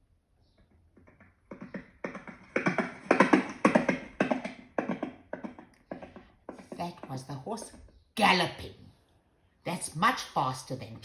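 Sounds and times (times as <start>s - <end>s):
horse galloping hoofbeats: 0.7s - 7.8s.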